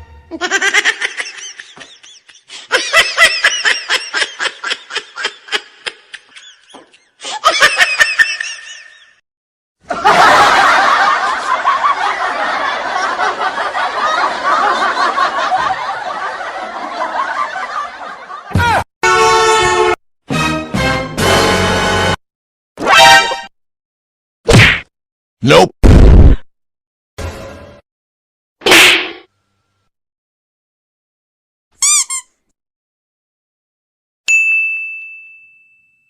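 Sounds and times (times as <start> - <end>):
many voices laughing: 0.3 - 9.2, 9.8 - 18.8.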